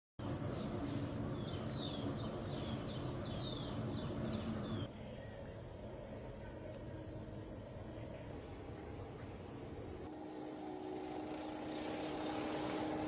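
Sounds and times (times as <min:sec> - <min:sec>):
bird chirping: 0:00.2 - 0:09.7.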